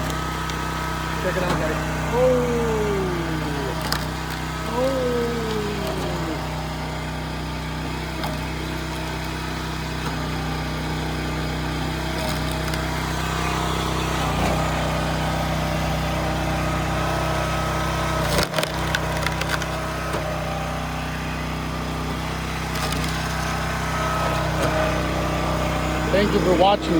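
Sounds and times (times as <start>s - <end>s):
log splitter engine running: 0.0s - 26.9s
log splitting cracks: 12.2s - 12.9s, 18.2s - 19.8s.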